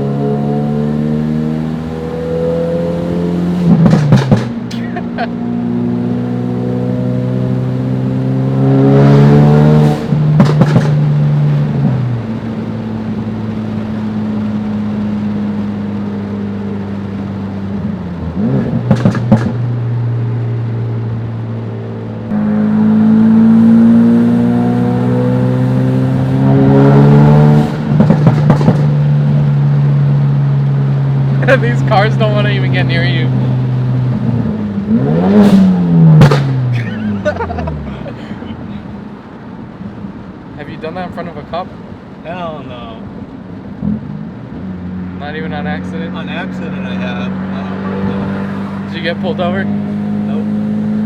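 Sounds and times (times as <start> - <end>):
car engine revving: 0.0 - 51.0
exhaust pops and crackles: 3.6 - 5.1, 10.1 - 12.2, 18.4 - 19.9, 27.6 - 29.8, 34.0 - 38.6.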